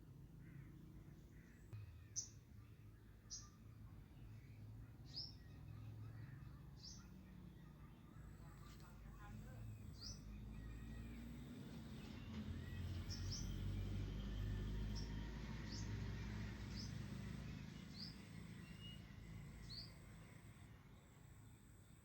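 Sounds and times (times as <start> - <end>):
bird chirping: 8.2 - 22.0.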